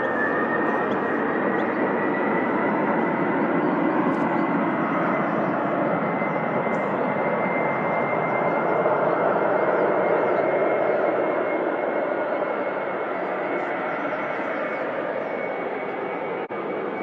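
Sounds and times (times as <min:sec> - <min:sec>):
airliner engines running: 0:00.0 - 0:17.0.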